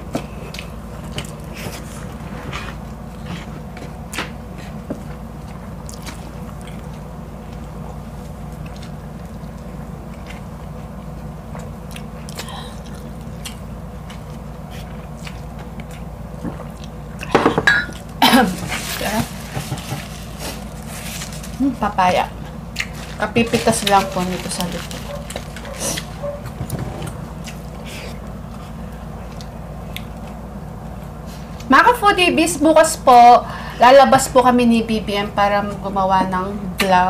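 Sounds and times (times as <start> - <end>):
steady low hum: 0.0 - 37.0
chewing mouth sounds: 3.1 - 17.3, 22.4 - 26.5, 27.1 - 30.4.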